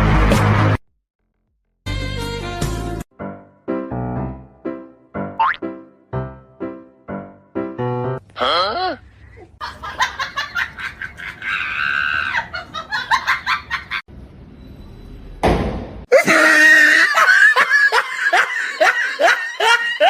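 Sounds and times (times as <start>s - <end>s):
people laughing and screaming: 9.7s - 14.0s, 16.1s - 20.0s.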